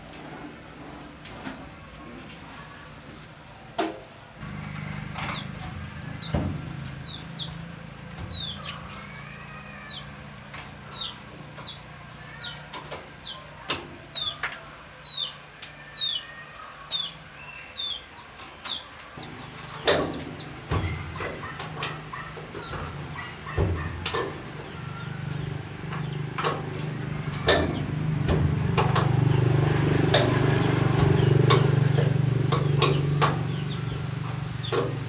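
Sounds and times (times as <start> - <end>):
chick peeping: 5.3 - 9.0, 15.0 - 35.0.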